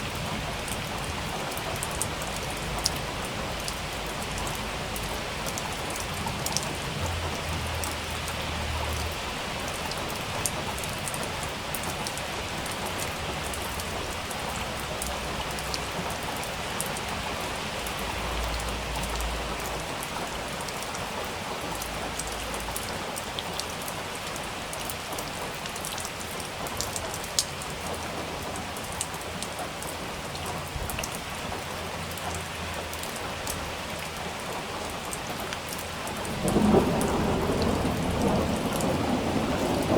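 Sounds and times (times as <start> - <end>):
heavy rain falling: 0.0 - 39.9
sharp raindrop clicks: 21.6 - 39.9.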